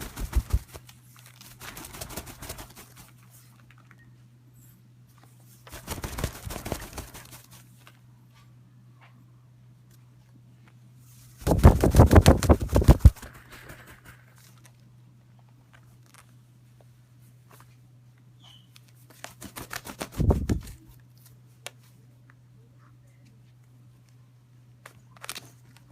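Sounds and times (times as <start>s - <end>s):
bird wings flapping: 0.0s - 3.2s, 5.7s - 7.6s, 11.4s - 14.4s, 19.2s - 20.8s
faint low hum: 0.0s - 25.9s.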